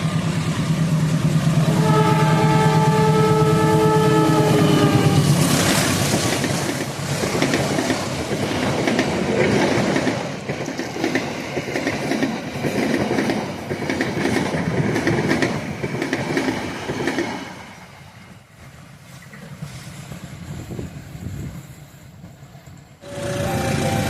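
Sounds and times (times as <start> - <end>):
train wheels clattering over rails: 4.9 - 24.0.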